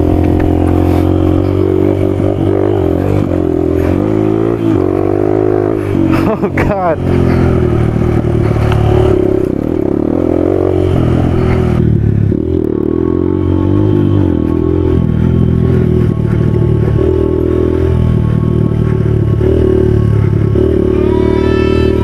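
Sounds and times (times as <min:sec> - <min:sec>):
bike rattling: 0:00.0 - 0:22.0
dirt bike engine revving: 0:00.0 - 0:22.0.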